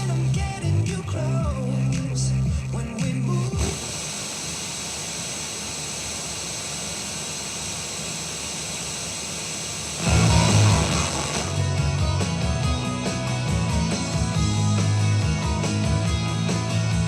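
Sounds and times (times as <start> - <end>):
steady amplifier hiss: 0.0 - 14.4
guitar music: 10.0 - 17.0.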